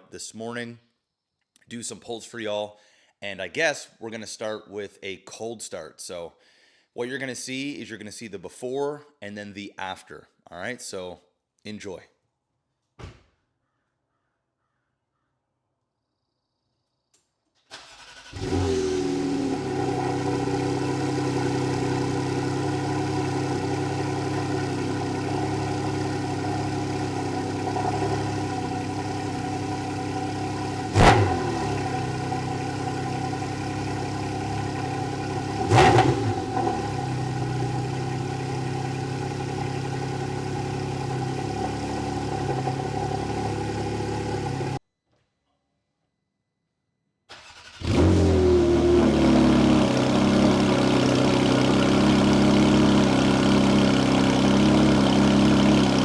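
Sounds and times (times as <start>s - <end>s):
car engine starting and idling: 17.7s - 44.8s, 47.3s - 56.0s.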